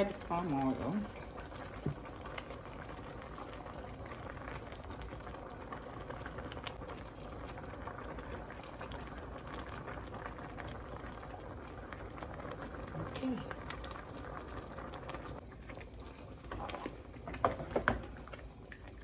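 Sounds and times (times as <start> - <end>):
soup boiling and bubbling: 0.0 - 19.0.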